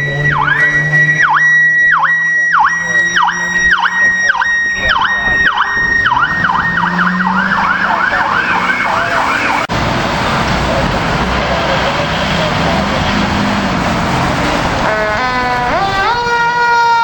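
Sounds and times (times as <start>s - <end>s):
electronic siren: 0.0s - 9.7s, 14.8s - 17.0s.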